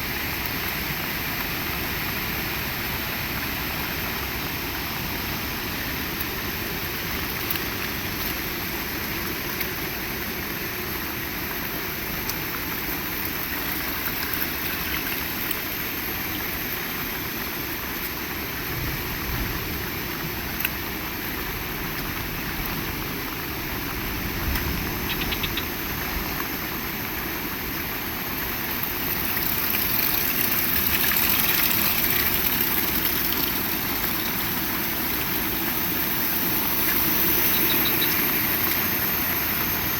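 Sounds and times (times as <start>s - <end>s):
heavy rain: 15.1s - 39.9s.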